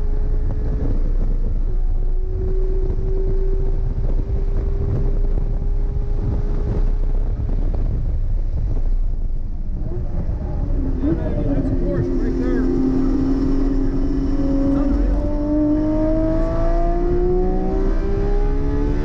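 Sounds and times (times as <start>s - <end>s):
car engine at full throttle: 0.0s - 19.0s
wind rushing over microphone: 0.0s - 19.0s.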